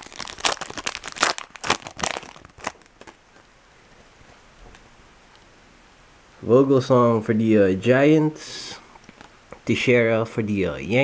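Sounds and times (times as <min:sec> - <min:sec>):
foil wrapper crinkling and tearing: 0:00.0 - 0:03.5.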